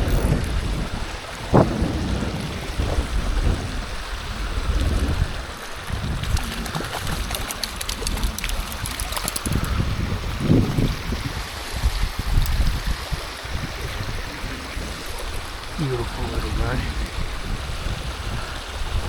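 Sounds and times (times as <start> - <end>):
water noise: 0.0 - 19.0
wind buffeting microphone: 0.0 - 19.0
rapid light clicks: 6.4 - 9.7.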